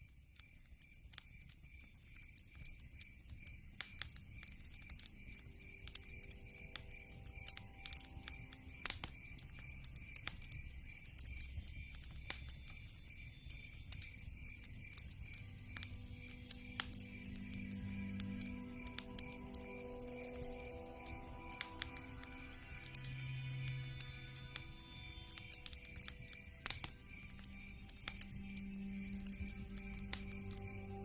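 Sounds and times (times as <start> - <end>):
campfire crackling and popping: 0.0 - 31.0
night insects chirping: 0.0 - 31.0.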